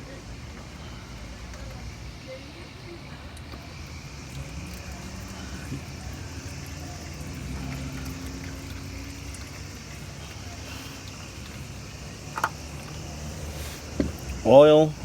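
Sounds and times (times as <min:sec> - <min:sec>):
lawn mower engine running: 0:03.5 - 0:15.0.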